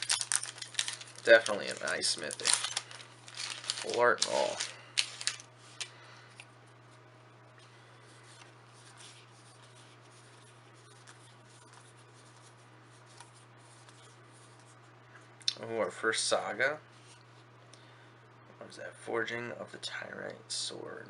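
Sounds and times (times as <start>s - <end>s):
cards rustling and sliding: 0.0s - 6.5s
steady low hum: 0.0s - 21.0s.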